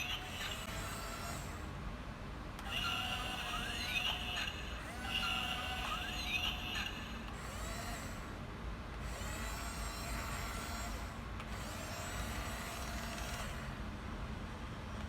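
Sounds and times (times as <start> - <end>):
toy bulldozer motors whining: 0.0 - 1.8, 2.6 - 8.4, 9.0 - 13.8.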